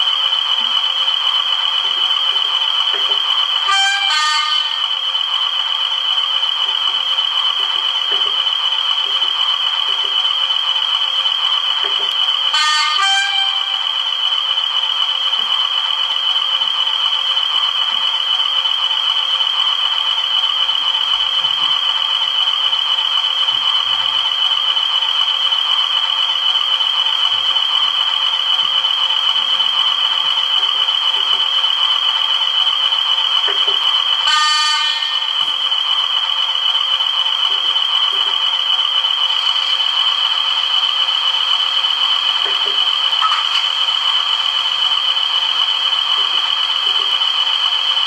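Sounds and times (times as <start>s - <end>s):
constant high whistle: 0.0s - 48.0s
diesel engine from small speaker: 0.0s - 48.0s
short horn sounds: 3.7s - 4.8s, 12.5s - 13.8s, 34.3s - 35.2s.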